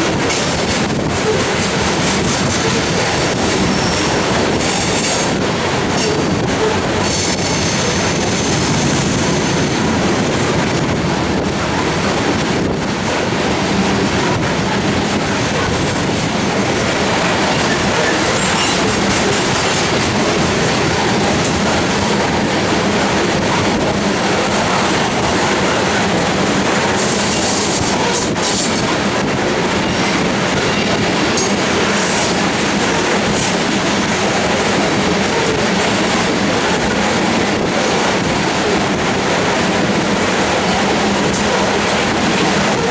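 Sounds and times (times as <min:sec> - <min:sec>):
freight train wheels rumbling: 0:00.0 - 0:42.9
high wheel squeal: 0:02.6 - 0:05.4.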